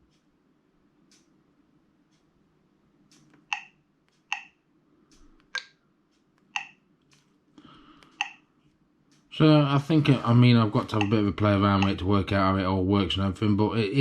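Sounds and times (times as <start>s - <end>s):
faint taps on touchscreen: 8.0s - 8.4s, 10.9s - 11.2s.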